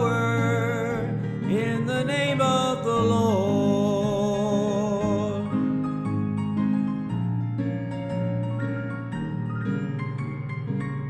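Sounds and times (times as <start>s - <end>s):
person singing with vibrato: 0.0s - 5.8s
instrumental backing: 0.0s - 11.0s.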